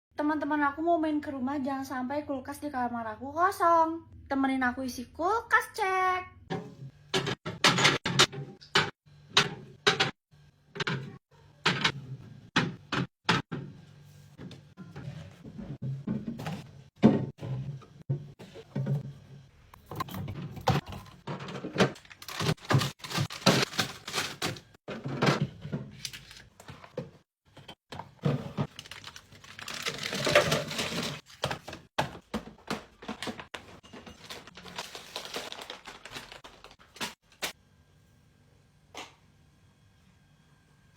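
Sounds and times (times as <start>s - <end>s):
packaging rustling: 22.0s - 24.8s, 28.4s - 37.2s.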